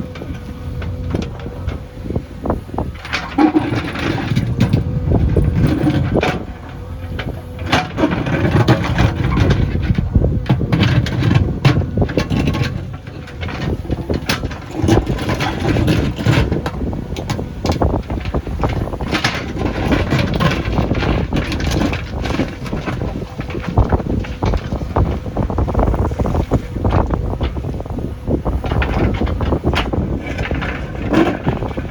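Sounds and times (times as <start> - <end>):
diesel engine rumbling under load: 0.0 - 31.9
knocks and clatter: 28.5 - 31.9.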